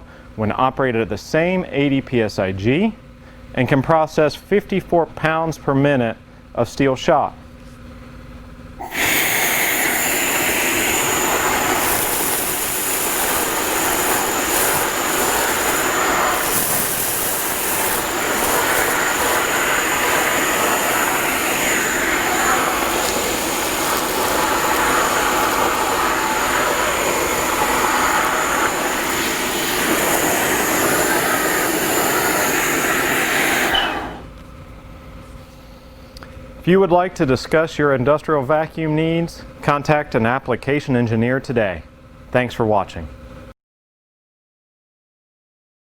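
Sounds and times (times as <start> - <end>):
vacuum rushing hiss with whistle: 8.8 - 34.3.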